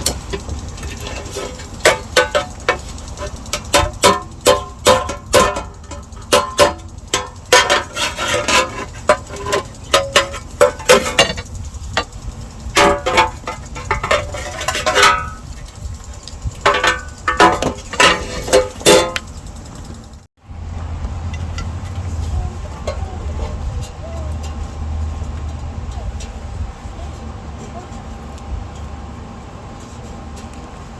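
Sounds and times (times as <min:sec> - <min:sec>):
hammer striking sheet steel: 0:00.0 - 0:11.4.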